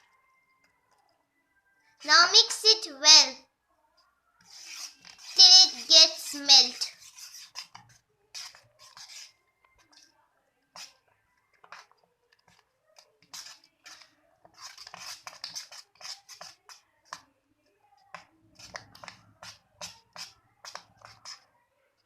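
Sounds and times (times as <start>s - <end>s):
utensil scraping bowl: 4.4s - 10.1s, 10.7s - 17.2s, 18.1s - 21.5s.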